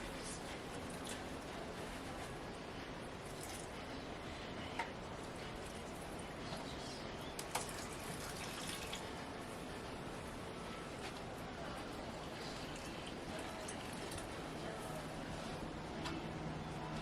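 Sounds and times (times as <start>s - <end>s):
water running and dripping: 7.4s - 9.1s.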